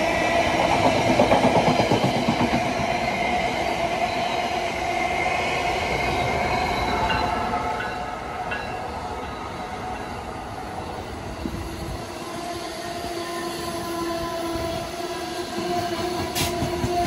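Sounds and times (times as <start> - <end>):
train rail rumble: 5.6 - 17.0.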